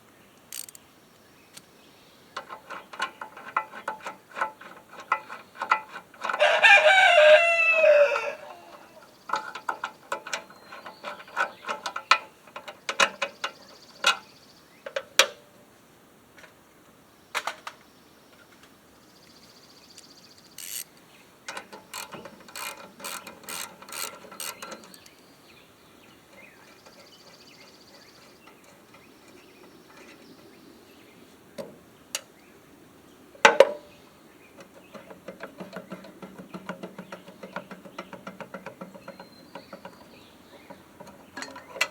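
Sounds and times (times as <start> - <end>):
ratchet-like clicking: 0.5 - 0.8, 20.6 - 20.9, 21.5 - 25.1
rooster crowing: 6.3 - 9.0
hand tools knocking: 21.5 - 25.1, 33.4 - 33.9, 34.6 - 41.9.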